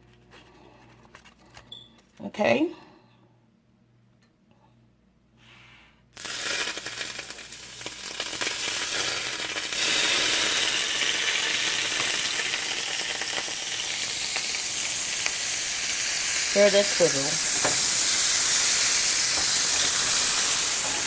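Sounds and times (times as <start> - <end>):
oil sizzling in a pan: 6.2 - 21.0.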